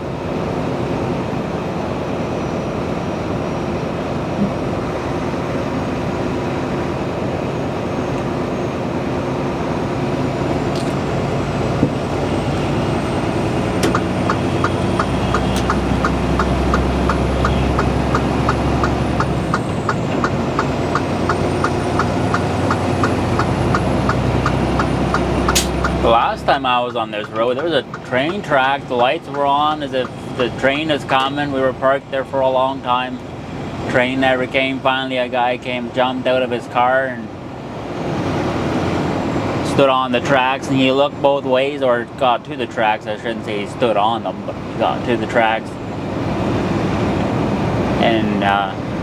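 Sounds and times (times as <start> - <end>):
truck engine and road noise: 0.0 - 49.0
deep drone: 10.2 - 32.3
fast regular ticking: 13.8 - 26.1, 26.9 - 30.4.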